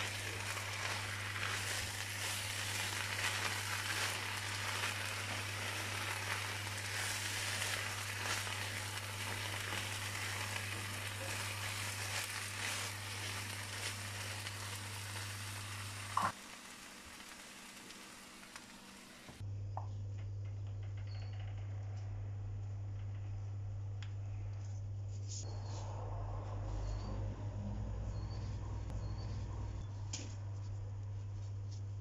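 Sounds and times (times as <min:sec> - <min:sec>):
spatula stirring and scraping: 0:00.0 - 0:14.9
food sizzling in a frying pan: 0:00.0 - 0:19.4.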